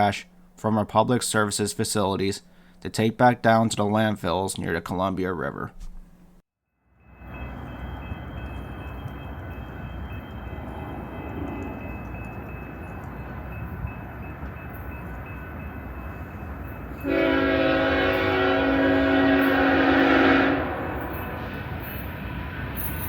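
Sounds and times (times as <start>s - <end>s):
freight train rumbling: 7.0s - 23.0s
locomotive air horn: 17.0s - 22.9s.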